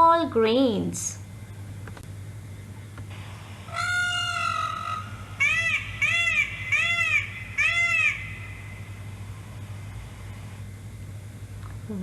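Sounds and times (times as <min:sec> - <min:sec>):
peacock calling: 0:03.6 - 0:09.5.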